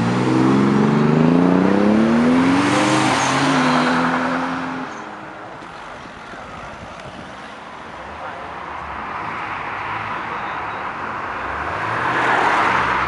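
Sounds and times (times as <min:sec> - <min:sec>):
car engine accelerating hard: 0:00.0 - 0:04.9.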